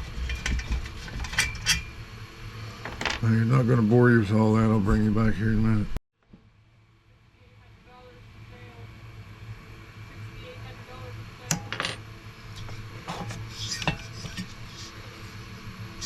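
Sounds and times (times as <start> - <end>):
metal tools clinking: 2.8 - 3.3
low steady hum: 6.8 - 13.0.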